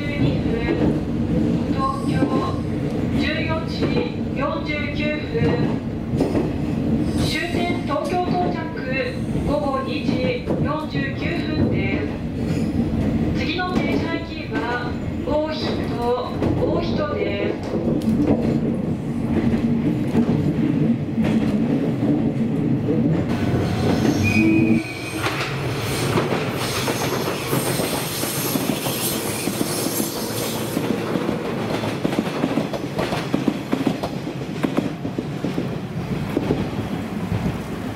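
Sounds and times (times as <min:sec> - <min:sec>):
train passing with squealing wheels: 0:12.4 - 0:13.0, 0:23.3 - 0:35.7.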